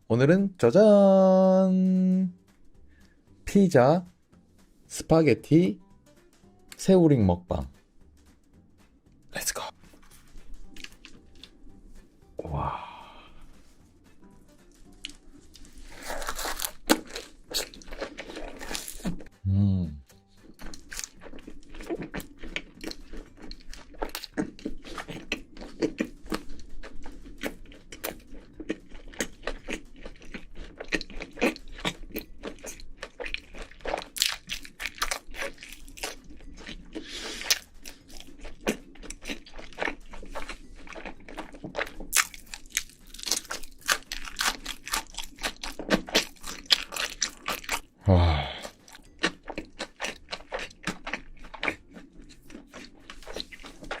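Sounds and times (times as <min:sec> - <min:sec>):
chewing pizza crust crunches: 0:10.2 - 0:11.6, 0:14.7 - 0:19.3, 0:20.4 - 0:47.9, 0:48.5 - 0:54.0.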